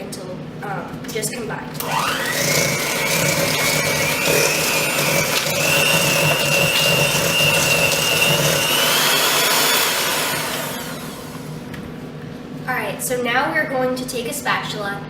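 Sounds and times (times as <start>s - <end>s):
electric hand mixer whining: 1.8s - 11.7s.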